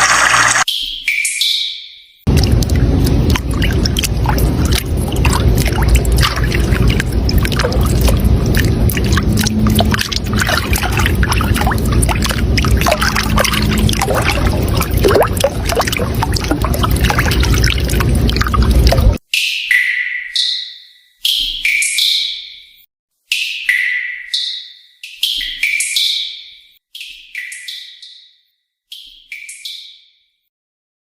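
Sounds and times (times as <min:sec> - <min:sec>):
water babbling and trickling: 0:02.3 - 0:19.2.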